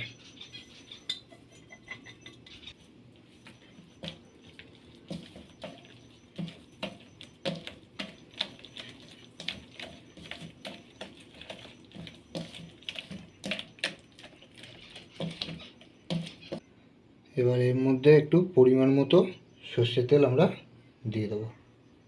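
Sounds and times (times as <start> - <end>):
spices mixed in a bowl: 0.0 - 16.7.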